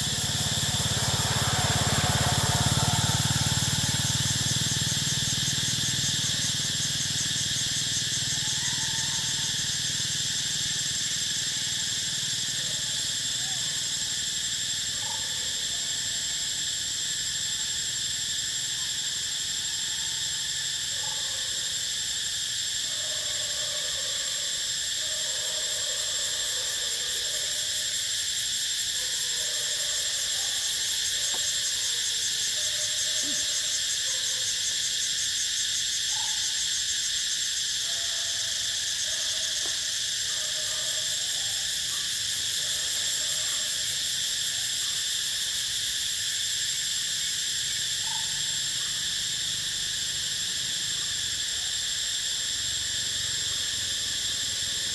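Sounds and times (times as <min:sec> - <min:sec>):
insect chorus droning: 0:00.0 - 0:54.9.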